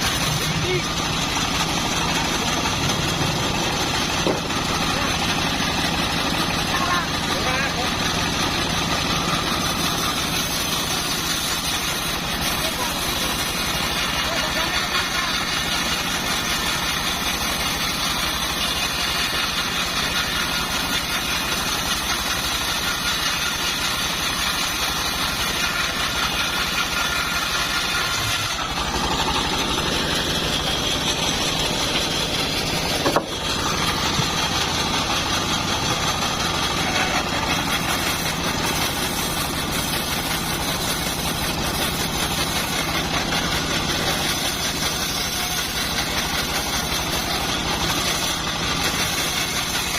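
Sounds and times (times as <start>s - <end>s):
band sawmill drone: 0.0s - 49.9s.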